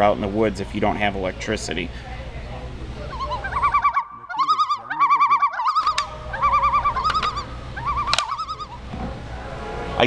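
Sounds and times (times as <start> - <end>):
bird warbling song: 3.1 - 8.9
sharp clicks: 5.7 - 6.2, 7.0 - 7.4, 8.1 - 8.5.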